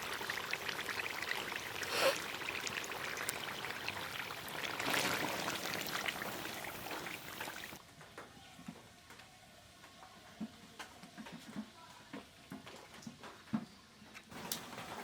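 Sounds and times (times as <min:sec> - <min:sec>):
watery hiss: 0:01.8 - 0:02.4.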